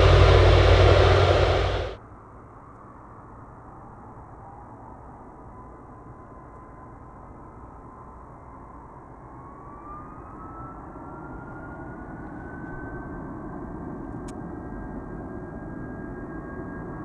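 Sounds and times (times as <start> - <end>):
jet engines spooling up: 0.0 - 2.0.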